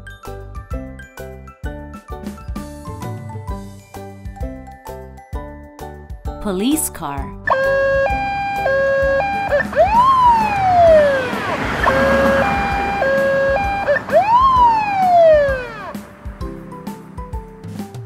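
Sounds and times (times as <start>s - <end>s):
police siren: 7.5s - 16.0s.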